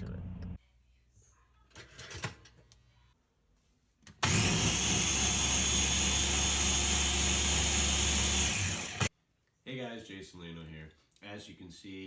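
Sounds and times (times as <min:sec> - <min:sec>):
loud motor humming: 0:04.2 - 0:09.1.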